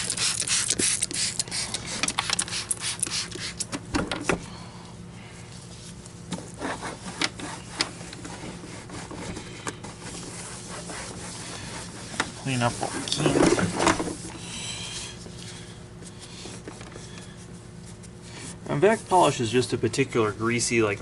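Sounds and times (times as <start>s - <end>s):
cloth rubbing on plastic: 5.7s - 13.5s.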